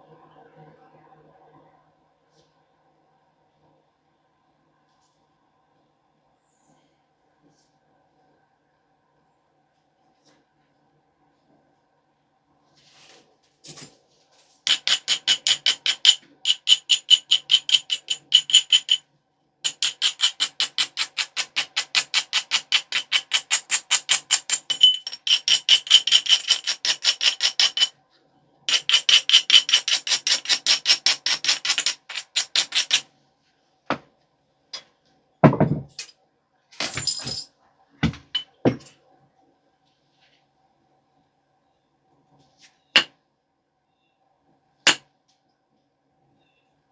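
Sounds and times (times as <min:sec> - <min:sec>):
stone knocking on stone: 0:35.4 - 0:35.9.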